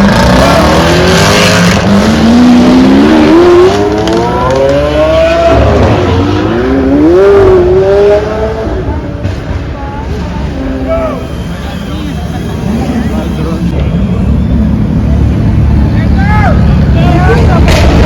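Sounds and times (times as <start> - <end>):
car engine accelerating: 0.0 - 9.6.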